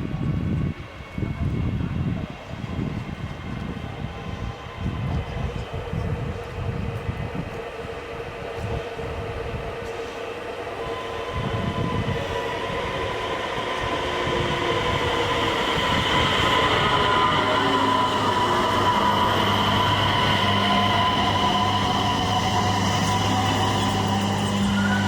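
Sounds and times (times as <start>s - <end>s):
train running on rails: 0.0s - 25.0s
steady high tones: 11.0s - 25.0s.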